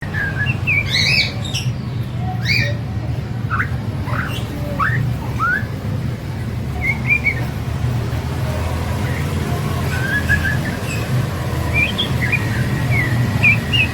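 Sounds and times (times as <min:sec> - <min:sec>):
bird singing whistled notes: 0:00.0 - 0:01.8, 0:03.5 - 0:05.7, 0:06.8 - 0:07.6, 0:09.0 - 0:13.9.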